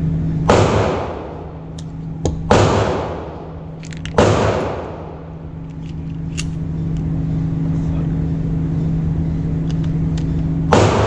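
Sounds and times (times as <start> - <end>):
low hum: 0.0 - 11.0
handgun shots echoing: 0.5 - 5.3, 10.7 - 11.0.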